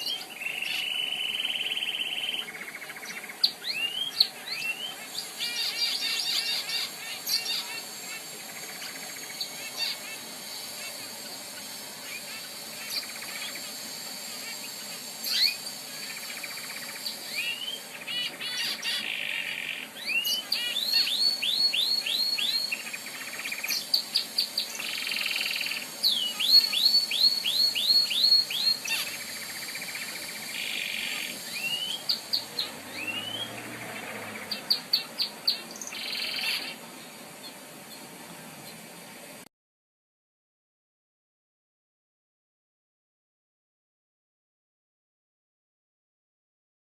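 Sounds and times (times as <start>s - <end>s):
canary singing: 0.0s - 38.0s.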